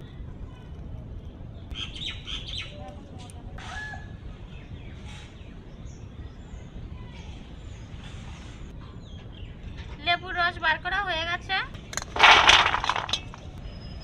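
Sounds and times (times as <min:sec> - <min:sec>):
small birds chirping: 0:00.0 - 0:03.4.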